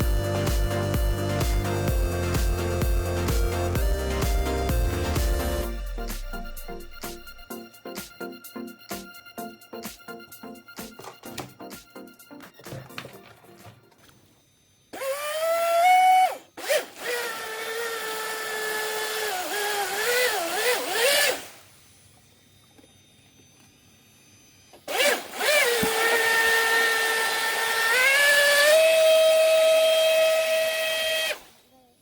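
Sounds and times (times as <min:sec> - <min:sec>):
electric motor whining: 0:00.0 - 0:07.4, 0:14.9 - 0:31.7.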